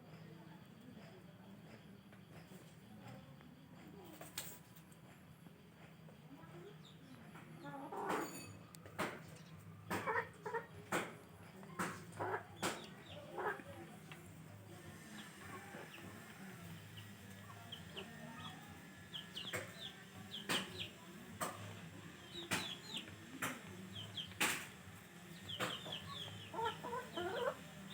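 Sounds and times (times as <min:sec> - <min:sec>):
hens clucking: 0:09.9 - 0:27.9.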